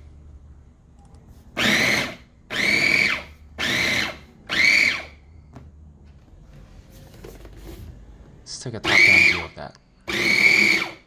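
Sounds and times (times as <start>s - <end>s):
food chopper motor whirring: 1.6s - 5.2s, 8.8s - 11.0s.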